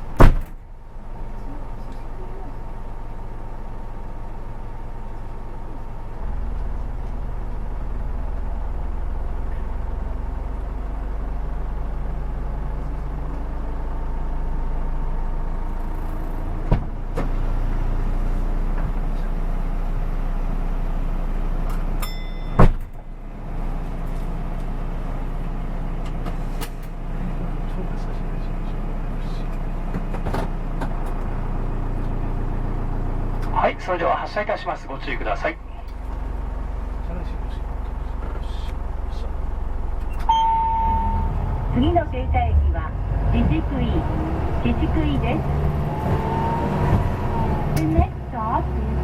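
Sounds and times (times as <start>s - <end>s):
diesel engine idling: 0.0s - 49.0s
loud thump: 0.2s - 0.6s, 16.6s - 17.3s, 22.6s - 23.0s
brief tone: 40.1s - 41.8s.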